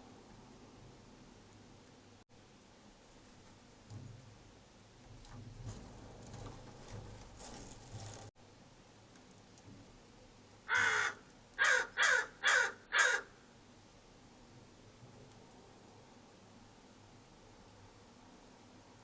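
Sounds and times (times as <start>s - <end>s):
crow cawing: 10.7s - 13.4s.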